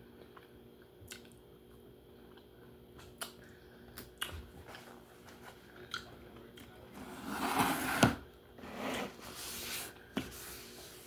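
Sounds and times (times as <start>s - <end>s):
soft chewing: 0.0s - 6.8s.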